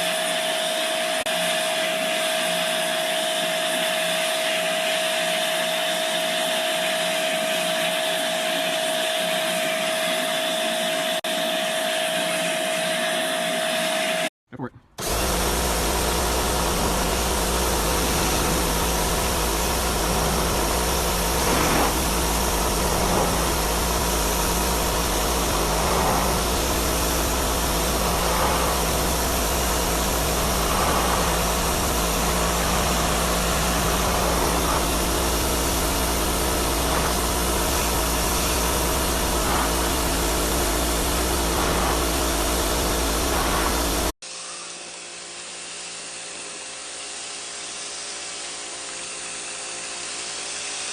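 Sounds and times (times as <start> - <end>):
high-pressure water spray hissing: 15.0 - 44.1
pressure washer engine hum: 15.0 - 44.1.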